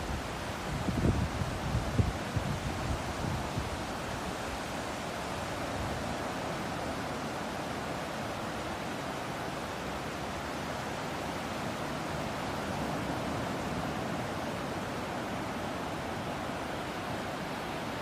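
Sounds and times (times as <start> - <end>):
ocean surf rushing: 0.0 - 18.0.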